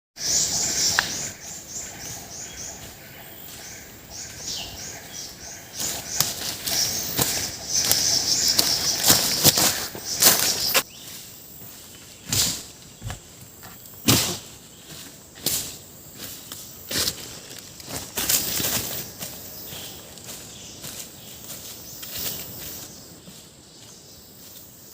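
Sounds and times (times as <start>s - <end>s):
high chirping call: 0.2s - 11.2s
rustling in undergrowth: 0.4s - 24.9s.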